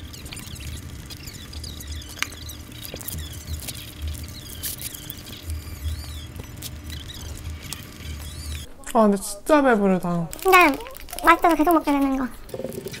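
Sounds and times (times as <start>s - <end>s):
chewing crunchy sandwich: 0.0s - 8.7s, 10.3s - 13.0s
wet mouth clicks: 12.4s - 13.0s.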